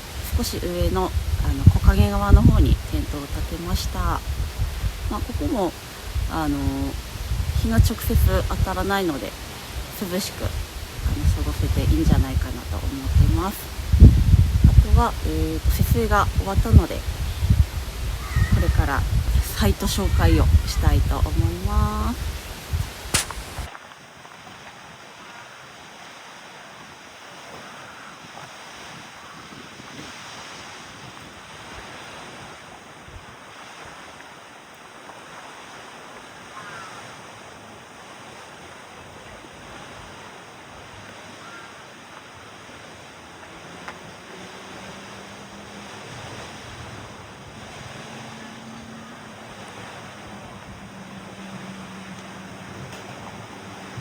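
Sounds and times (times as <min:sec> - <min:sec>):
wind rushing: 0:00.0 - 0:23.7, 0:44.3 - 0:54.0.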